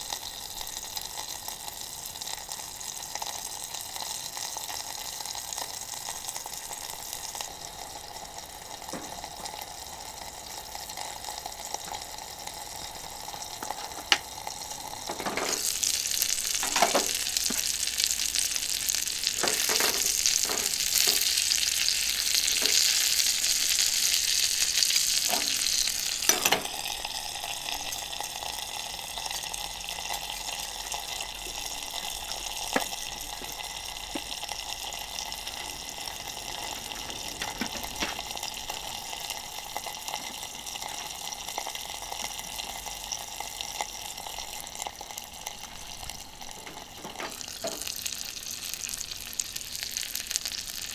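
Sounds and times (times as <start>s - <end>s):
chicken sizzling in a frying pan: 0.0s - 50.9s.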